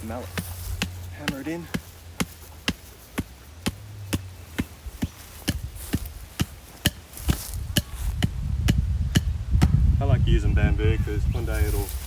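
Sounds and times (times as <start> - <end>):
mallet hammering a stake: 0.2 - 9.8.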